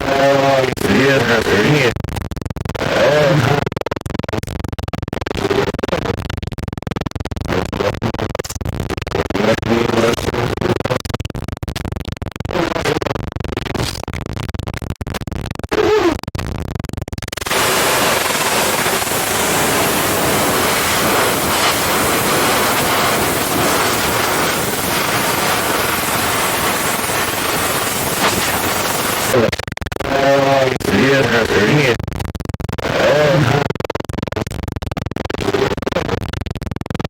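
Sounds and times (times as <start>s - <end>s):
television static hiss: 17.4s - 29.4s.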